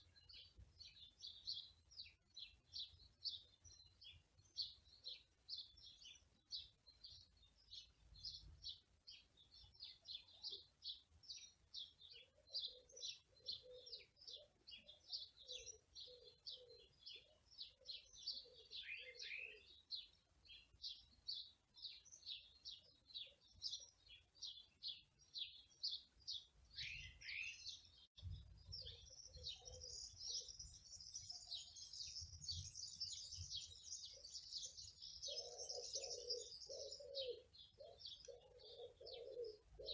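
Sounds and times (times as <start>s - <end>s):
small birds chirping: 0.0s - 39.9s
dove cooing: 12.5s - 14.5s, 35.2s - 39.9s.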